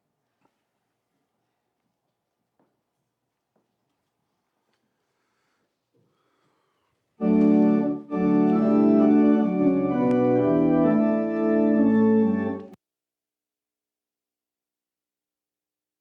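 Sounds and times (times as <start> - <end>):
organ playing sustained chords: 7.2 - 12.8.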